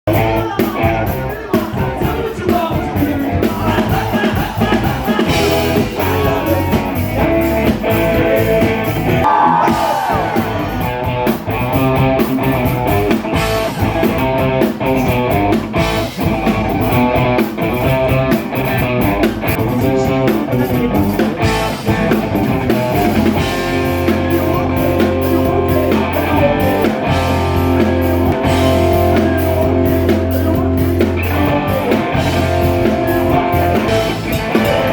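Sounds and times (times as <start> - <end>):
guitar: 0.0 - 34.9
person singing: 0.1 - 11.3, 19.5 - 21.8, 22.6 - 34.9
drum kit: 0.1 - 34.9.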